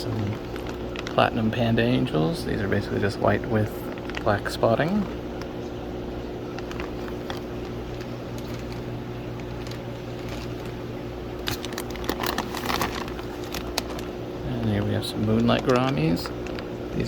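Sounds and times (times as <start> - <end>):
mechanical hum of equipment: 0.0 - 17.0.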